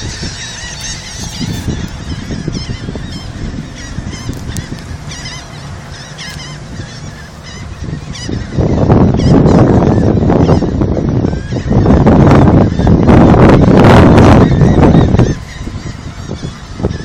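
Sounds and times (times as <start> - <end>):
seagulls calling: 0.0 - 17.0.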